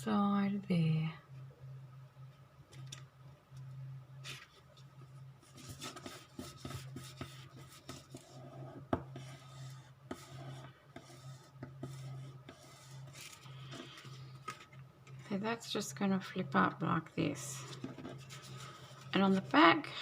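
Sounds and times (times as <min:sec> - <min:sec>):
faint low hum: 0:00.0 - 0:20.0
paper scraping and rustling: 0:04.2 - 0:08.6, 0:09.2 - 0:15.4, 0:17.4 - 0:19.6.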